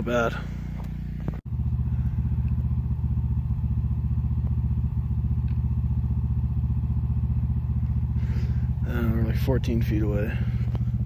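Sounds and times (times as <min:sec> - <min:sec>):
generator running: 0:00.1 - 0:11.0.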